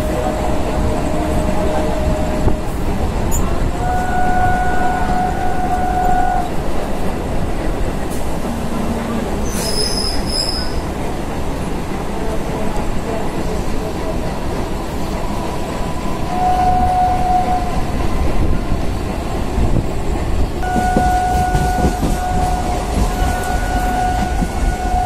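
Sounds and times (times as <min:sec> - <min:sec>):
train horn blasts: 0:00.0 - 0:02.7, 0:03.7 - 0:06.6, 0:16.3 - 0:17.9, 0:20.6 - 0:25.0
train wheels rumbling on rail: 0:00.0 - 0:25.0.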